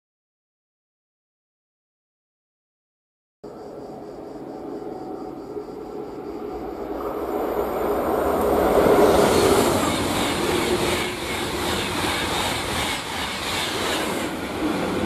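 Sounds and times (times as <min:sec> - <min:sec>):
high-speed train passing: 0:03.5 - 0:15.0.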